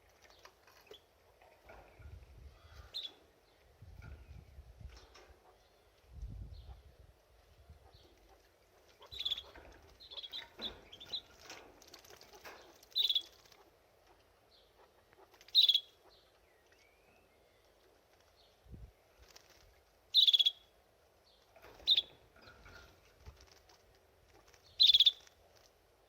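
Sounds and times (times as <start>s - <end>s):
canary chirping: 7.8s - 13.7s, 14.7s - 17.3s, 20.1s - 20.7s, 21.7s - 23.6s, 24.4s - 25.3s
wings fluttering: 8.0s - 15.8s, 17.8s - 20.4s, 21.4s - 25.9s.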